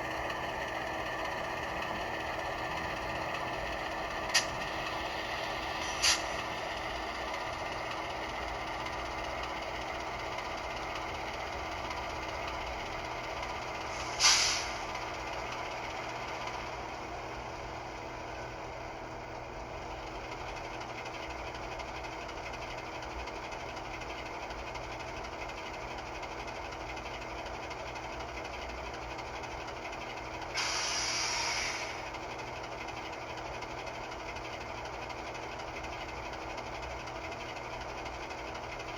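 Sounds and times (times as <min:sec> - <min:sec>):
model locomotive engine idling: 0:00.0 - 0:38.9
air hiss: 0:05.8 - 0:06.5, 0:13.9 - 0:14.9, 0:30.6 - 0:32.0.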